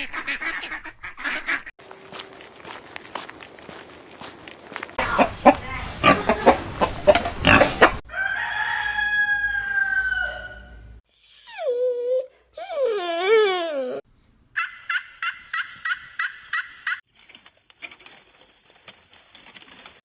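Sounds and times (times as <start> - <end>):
chickens clucking: 5.0 - 8.0
chicken calls: 5.0 - 10.8
rooster crowing: 5.0 - 10.9.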